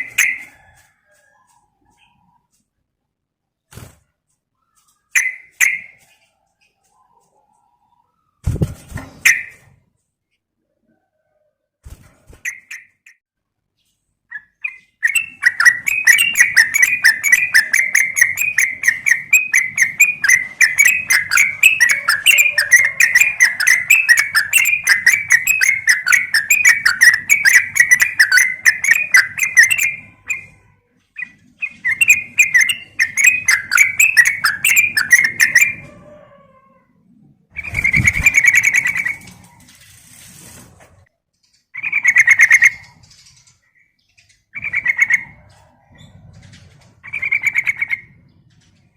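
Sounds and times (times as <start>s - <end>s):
bird rapid chattering calls: 14.3s - 30.6s, 31.2s - 35.8s, 37.6s - 39.4s, 47.0s - 48.1s.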